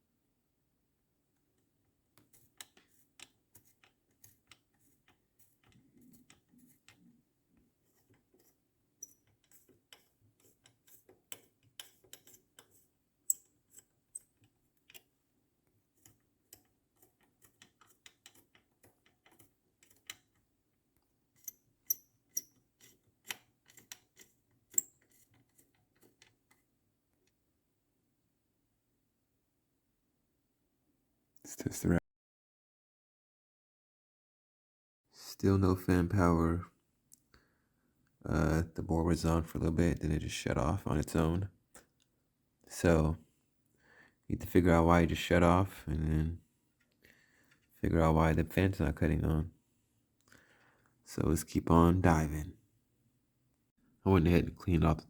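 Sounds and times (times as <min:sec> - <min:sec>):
tools and parts clicking: 0:02.2 - 0:07.1, 0:07.9 - 0:15.1, 0:16.0 - 0:20.5, 0:21.4 - 0:26.6.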